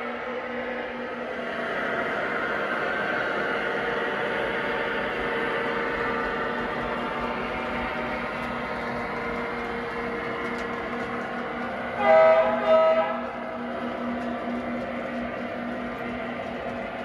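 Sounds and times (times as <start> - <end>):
model train engine drone: 0.0 - 17.0
train horn blasts: 11.9 - 13.4.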